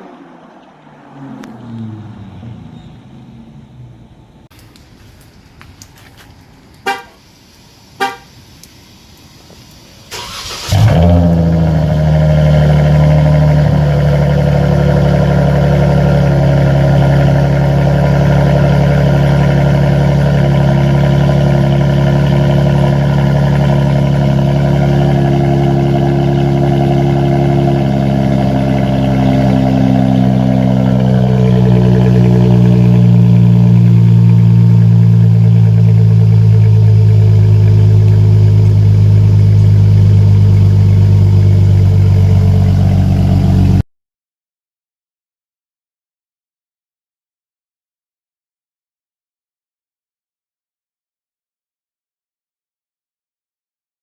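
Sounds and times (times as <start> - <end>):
car engine starting and idling: 0.0 - 43.8
car horn chirps: 6.8 - 7.2, 8.0 - 8.4.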